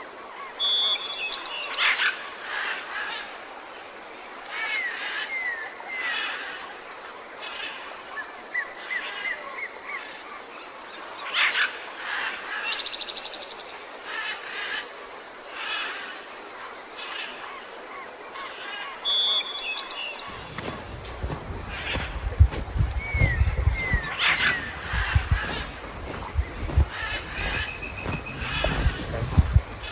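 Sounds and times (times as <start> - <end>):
birds chirping: 20.2 - 29.9.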